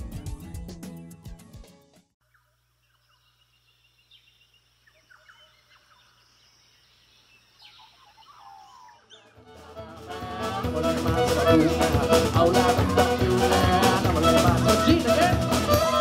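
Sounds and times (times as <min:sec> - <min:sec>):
faint bird calls: 0:02.2 - 0:09.4.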